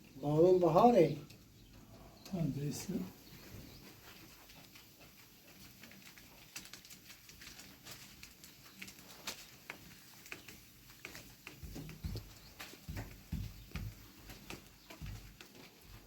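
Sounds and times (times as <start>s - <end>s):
small clicks and knocks: 4.4s - 15.9s.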